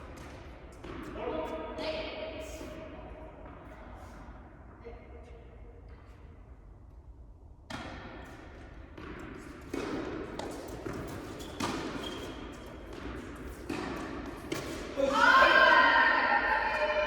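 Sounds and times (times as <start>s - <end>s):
tennis ball bouncing on court: 0.1s - 1.2s, 7.7s - 14.9s
rackets hitting tennis ball: 0.1s - 1.6s, 7.6s - 15.3s.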